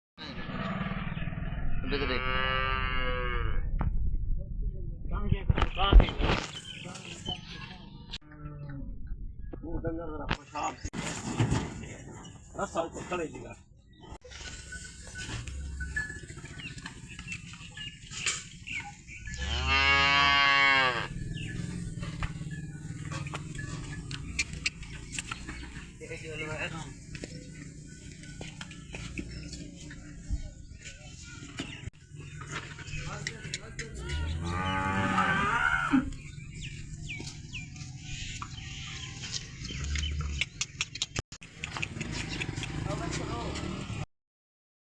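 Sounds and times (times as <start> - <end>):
cow mooing: 2.0 - 3.6, 19.4 - 25.1, 33.9 - 36.2
chickens clucking: 21.1 - 35.3.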